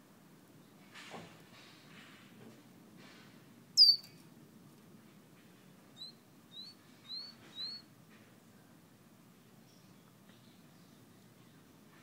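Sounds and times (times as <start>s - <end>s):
songbird whistling and chirping: 3.8s - 4.1s, 6.0s - 7.9s.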